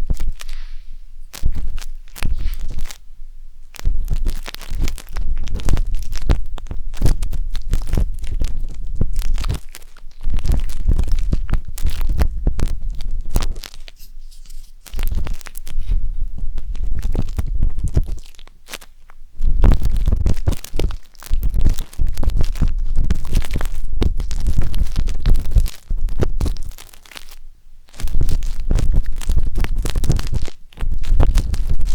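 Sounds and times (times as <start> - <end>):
wooden skewer scratching microphone: 0.0 - 3.0, 10.4 - 18.2
heavy low rumble: 10.3 - 18.3.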